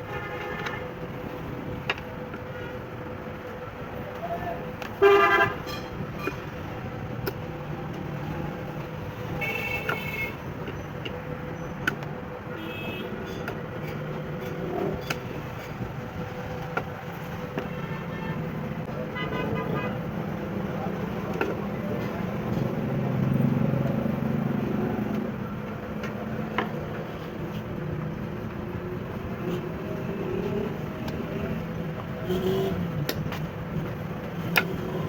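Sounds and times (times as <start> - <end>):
traffic hum: 0.0 - 35.0
vehicle horns honking: 5.0 - 6.4, 17.8 - 20.1.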